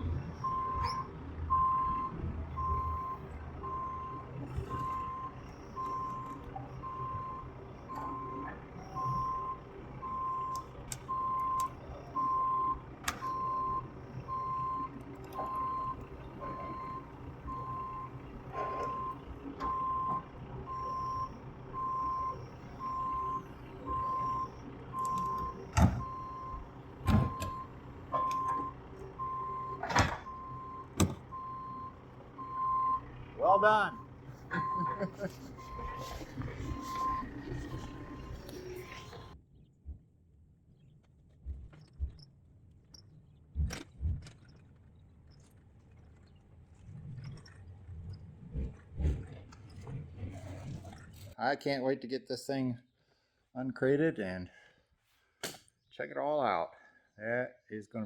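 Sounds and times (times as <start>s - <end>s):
low machine rumble: 0.0s - 40.1s
reversing alarm beeping: 0.4s - 39.4s.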